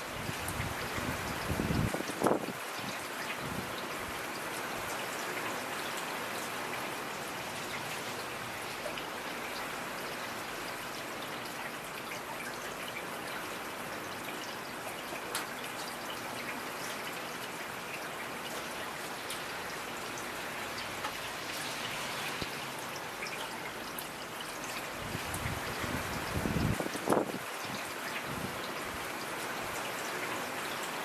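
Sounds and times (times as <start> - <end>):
rain falling: 0.0 - 31.0
water trickling: 0.0 - 31.0.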